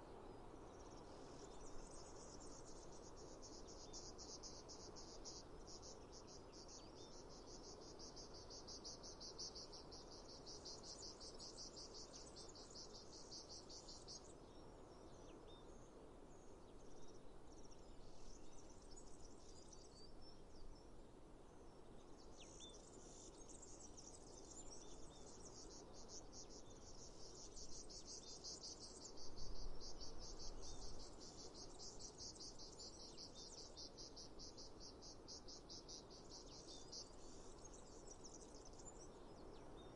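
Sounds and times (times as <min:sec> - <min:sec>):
faint low hiss: 0:00.0 - 0:39.9
crickets chirping: 0:00.6 - 0:14.3, 0:22.4 - 0:39.9.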